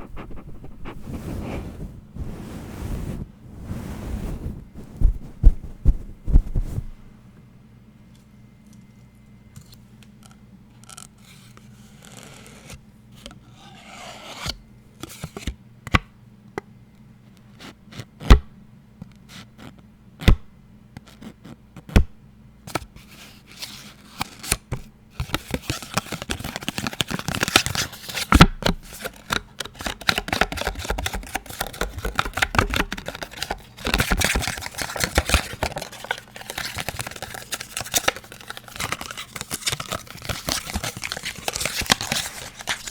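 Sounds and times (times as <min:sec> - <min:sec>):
faint rubbing: 0:00.0 - 0:07.0
fast scratching and tapping: 0:28.8 - 0:42.9.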